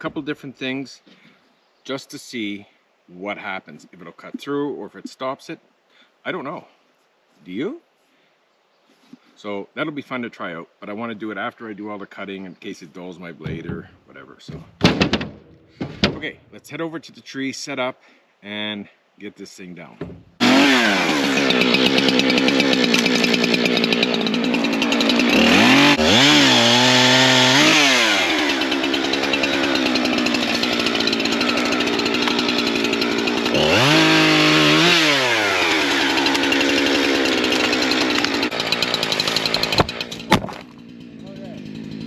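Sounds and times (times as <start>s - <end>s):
chainsaw running at high revs: 20.4s - 42.0s.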